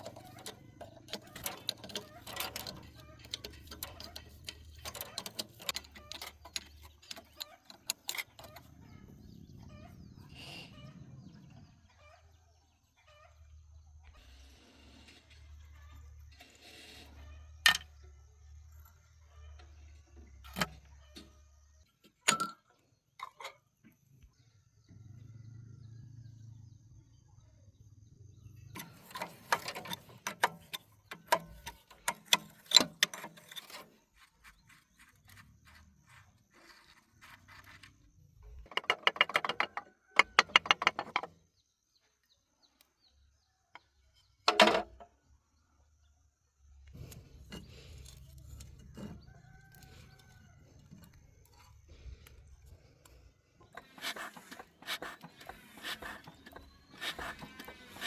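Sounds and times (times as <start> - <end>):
hand tools clinking on metal: 0.0 - 8.7.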